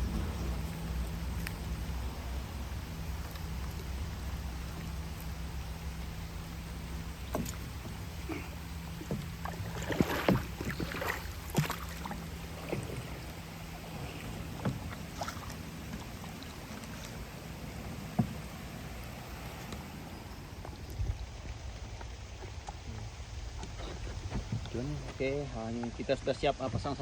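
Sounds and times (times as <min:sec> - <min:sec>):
low steady hum: 0:00.0 - 0:27.0
water splashing: 0:00.0 - 0:27.0
knocks against boat hull: 0:07.3 - 0:08.0, 0:09.0 - 0:10.9, 0:18.1 - 0:18.6.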